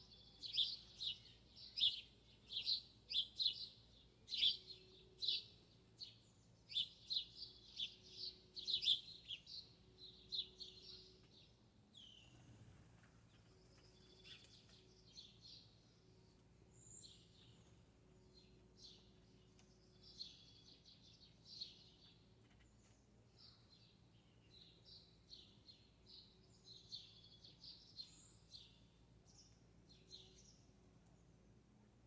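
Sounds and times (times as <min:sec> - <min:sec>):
small birds chirping: 0:00.0 - 0:31.5
rustle: 0:11.3 - 0:15.4.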